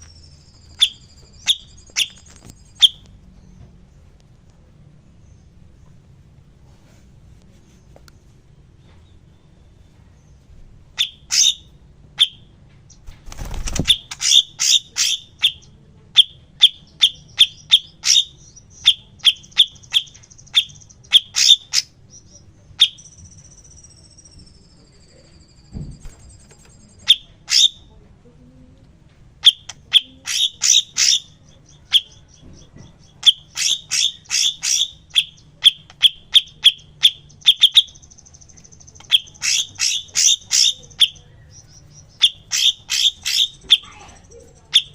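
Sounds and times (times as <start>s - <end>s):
bird chipping and trilling: 0.0s - 3.6s, 10.2s - 27.9s, 29.3s - 44.9s.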